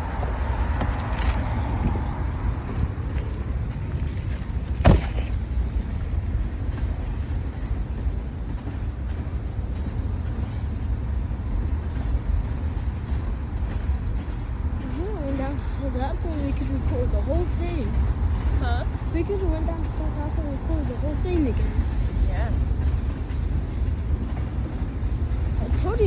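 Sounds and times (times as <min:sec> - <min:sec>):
freight train rumbling: 0:00.0 - 0:26.0
sharp knock: 0:04.8 - 0:05.4.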